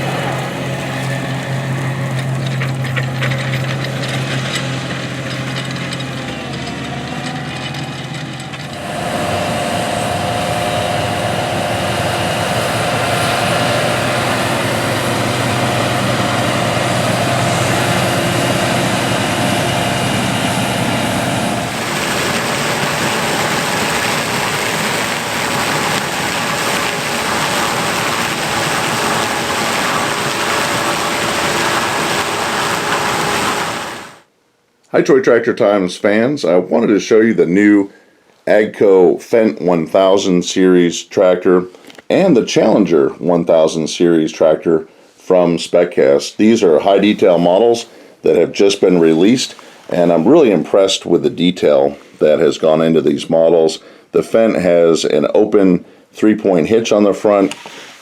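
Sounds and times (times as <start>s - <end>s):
vehicle engine running: 0.0s - 34.3s.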